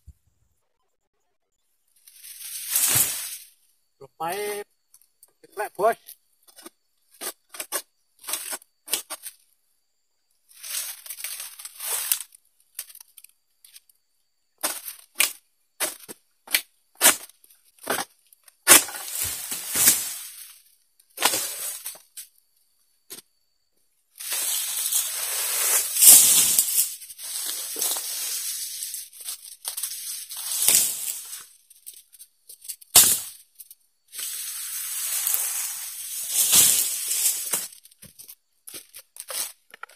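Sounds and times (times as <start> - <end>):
sickle cutting palm stalks: 2.1 - 3.5, 7.2 - 9.4, 10.5 - 13.8, 14.6 - 20.6, 21.2 - 22.2, 24.2 - 31.6, 32.6 - 33.4, 34.2 - 39.7
fronds rustling and tearing: 10.6 - 13.8, 18.7 - 20.6, 24.2 - 32.0, 34.2 - 39.5.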